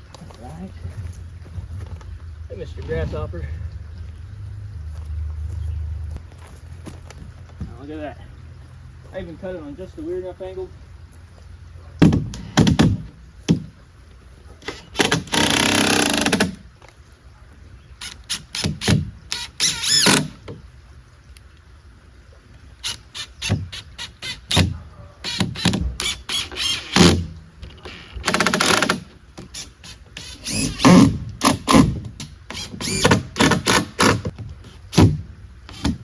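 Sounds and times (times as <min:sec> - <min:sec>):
boards knocking and thudding: 0:12.0 - 0:13.8, 0:18.4 - 0:19.3, 0:28.2 - 0:36.0
noisy power tool: 0:14.7 - 0:16.6.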